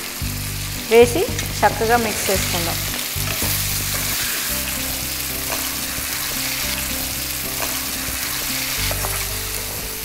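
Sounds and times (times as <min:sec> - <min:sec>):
chicken frying in oil: 0:00.0 - 0:10.0
soft background music: 0:00.0 - 0:10.0
spoon stirring a pan: 0:02.4 - 0:09.8.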